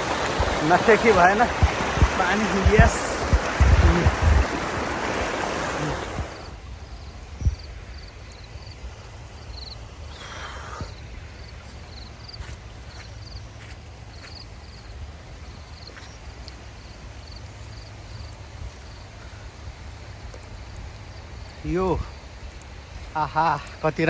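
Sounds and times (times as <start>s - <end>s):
low wind rumble: 0.0s - 12.9s
stream water rushing: 0.0s - 13.9s.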